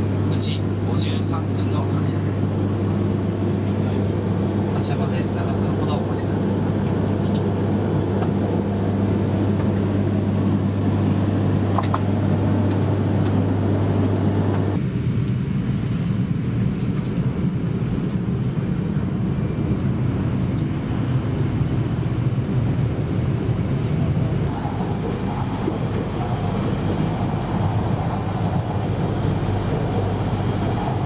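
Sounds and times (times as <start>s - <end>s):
rough low rumbling: 0.0s - 14.8s, 24.4s - 31.0s
train electrical hum: 0.0s - 14.8s, 17.7s - 31.0s.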